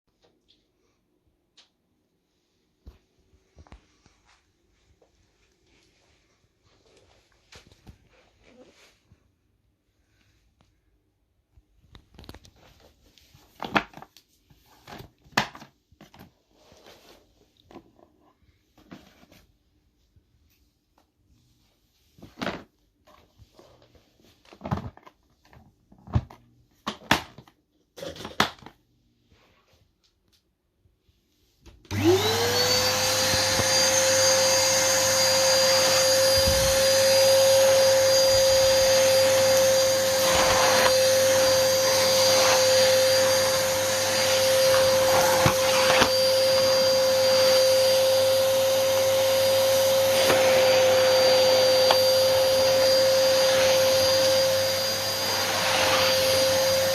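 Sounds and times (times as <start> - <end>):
vacuum cleaner motor running: 31.9 - 56.9.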